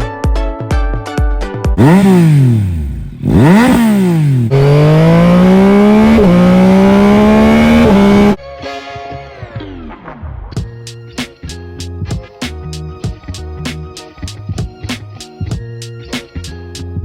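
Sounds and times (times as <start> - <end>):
background music: 0.0 - 1.8, 8.4 - 17.0
motorcycle accelerating hard: 1.8 - 8.4
motorcycle flyby: 1.8 - 8.4.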